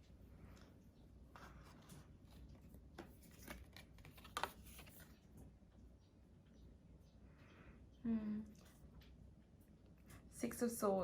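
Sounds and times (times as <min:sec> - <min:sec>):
cards rustling and clicking: 0:01.4 - 0:05.3.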